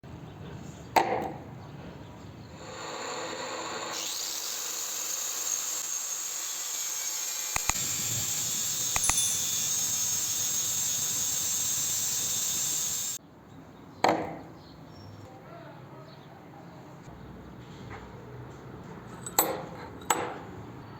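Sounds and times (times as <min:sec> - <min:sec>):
power tool running on metal: 0:02.6 - 0:13.2.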